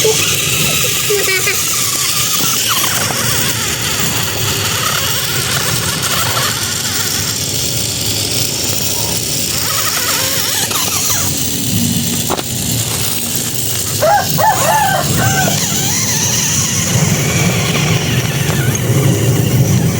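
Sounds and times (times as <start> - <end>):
short squeaky chirps: 0.0 - 7.3, 9.6 - 11.6
toy tractor motor running: 0.0 - 19.9.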